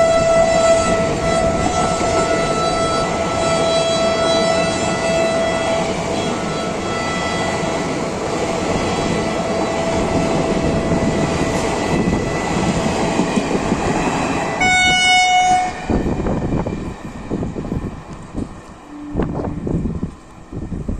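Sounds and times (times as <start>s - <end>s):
train horn: 0.0s - 7.9s, 14.6s - 16.2s, 18.8s - 19.9s.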